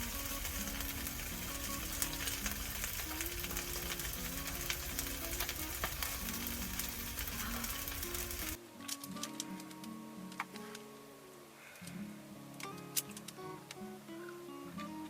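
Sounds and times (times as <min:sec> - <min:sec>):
food sizzling in a pan: 0:00.0 - 0:08.6.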